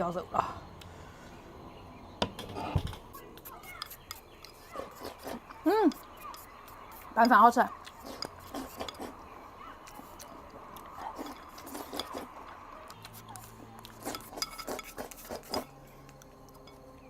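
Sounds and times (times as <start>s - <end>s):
person chewing food: 3.1s - 16.9s.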